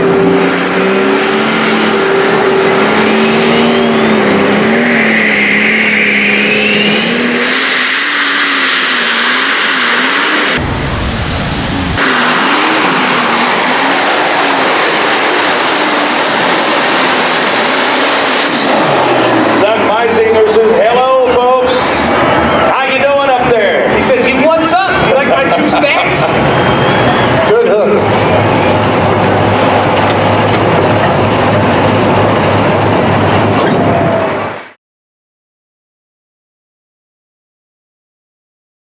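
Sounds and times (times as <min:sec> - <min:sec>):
tractor engine roaring: 0:00.0 - 0:34.8
turbo whine: 0:00.0 - 0:34.8.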